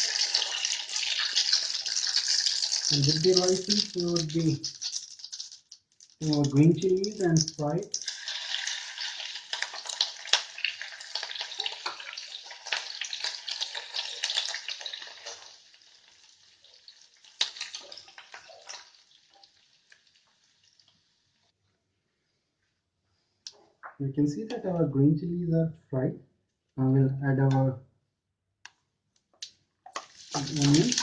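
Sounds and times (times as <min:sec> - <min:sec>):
chilies sizzling in hot oil: 0:00.0 - 0:21.5, 0:30.0 - 0:31.0.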